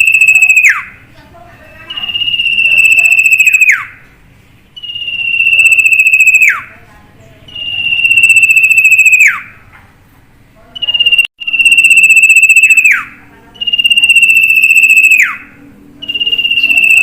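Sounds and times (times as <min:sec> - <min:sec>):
bird trilling call: 0:00.0 - 0:01.0, 0:01.7 - 0:04.0, 0:04.8 - 0:06.7, 0:07.5 - 0:09.6, 0:10.8 - 0:17.0.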